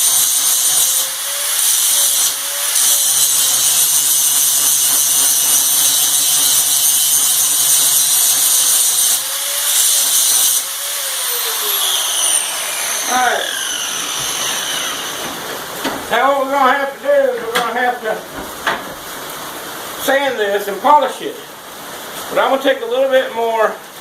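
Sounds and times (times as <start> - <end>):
power tool grinding metal: 0.0 - 16.2.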